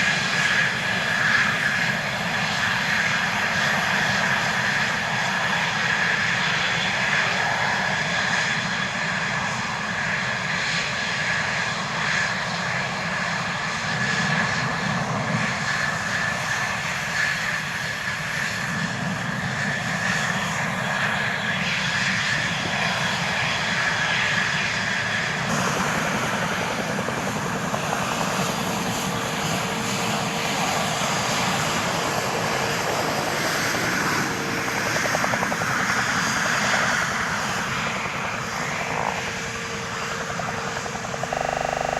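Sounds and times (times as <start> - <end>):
jet engine running: 0.0 - 41.9
high whine: 40.8 - 41.9.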